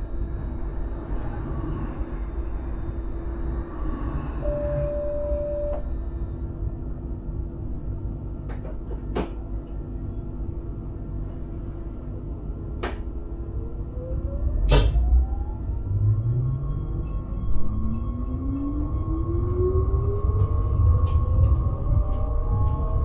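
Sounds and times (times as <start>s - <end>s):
electric train rumble: 0.0s - 23.0s
short steady beep: 4.4s - 6.0s
train motor whine rising: 13.5s - 23.0s.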